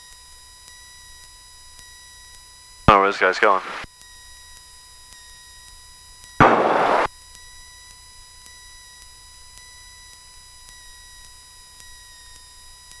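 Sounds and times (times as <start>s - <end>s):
burst of static hiss: 2.9s - 3.8s, 6.4s - 7.1s
faint electrical hum: 2.9s - 3.8s.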